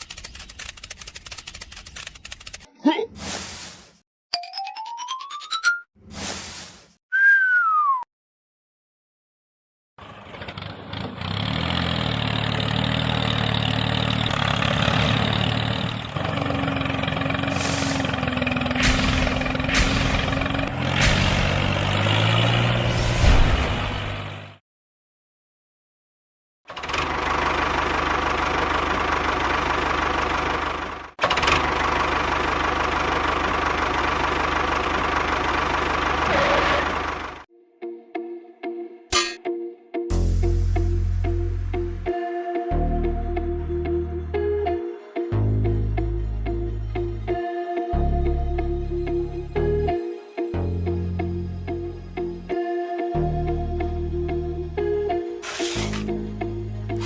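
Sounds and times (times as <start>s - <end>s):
engine idling with low rattle: 26.7s - 37.4s.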